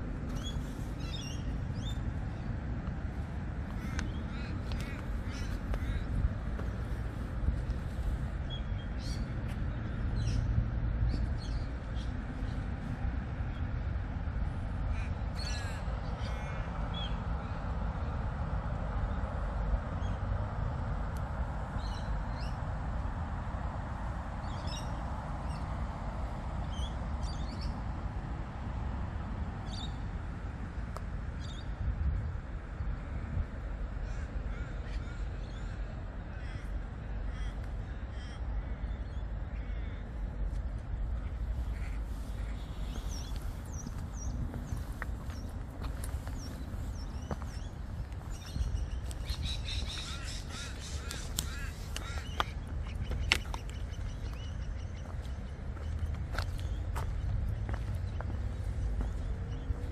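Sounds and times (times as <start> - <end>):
low background rumble: 0.0 - 59.9
wild birds calling: 3.6 - 7.2, 14.9 - 17.7, 34.0 - 40.4, 41.1 - 59.9.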